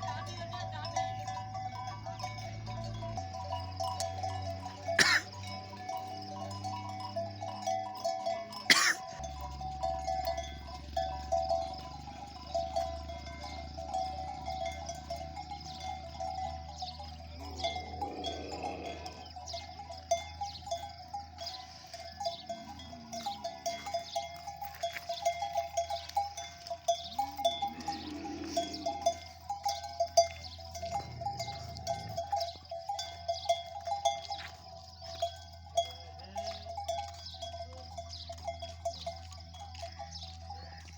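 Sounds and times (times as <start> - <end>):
camel bells clinking: 0.0 - 40.9
animal calling: 27.1 - 29.2.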